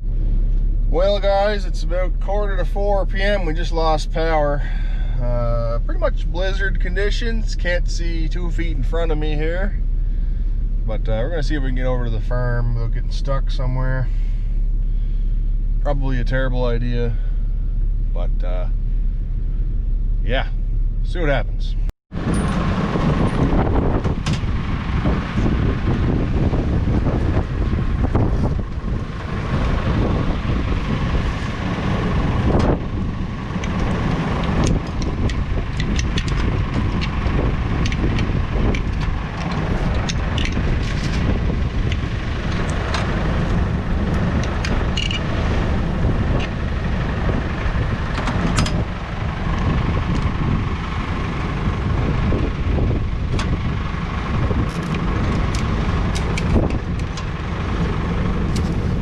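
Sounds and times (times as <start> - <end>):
vehicle engine and road rumble: 0.0 - 59.0
wind noise: 22.1 - 59.0
small clicks and knocks: 44.4 - 45.3.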